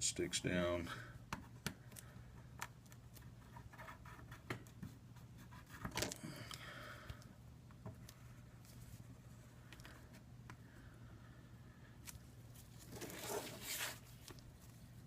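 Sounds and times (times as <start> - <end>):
steady low hum: 0.0 - 15.0
tool scraping tablet edge: 13.0 - 14.0.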